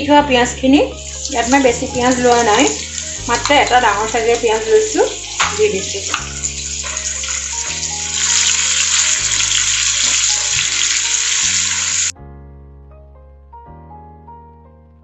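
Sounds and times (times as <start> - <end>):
background music: 0.0 - 15.0
onion paste sizzling in oil: 0.4 - 12.1.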